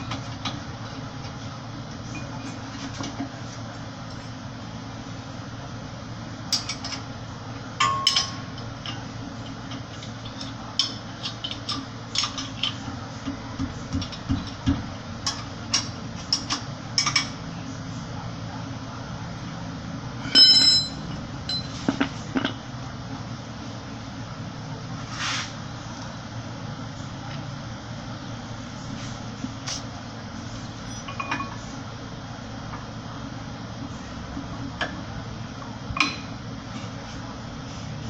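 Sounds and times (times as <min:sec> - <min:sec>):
steady low hum: 0:00.0 - 0:38.0
ringing metallic clang: 0:20.3 - 0:21.7
metal tools clinking: 0:20.3 - 0:21.8.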